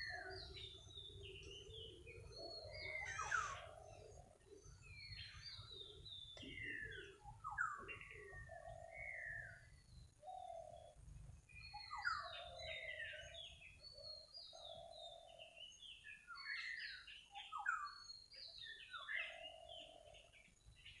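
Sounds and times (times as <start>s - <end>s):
birds chirping and whistling: 0.0s - 20.1s.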